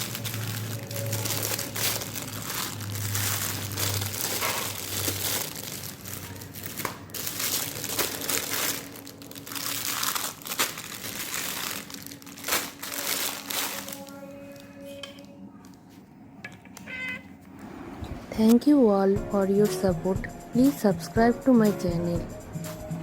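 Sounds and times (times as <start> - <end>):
plastic packaging crinkling: 0.0 - 15.7.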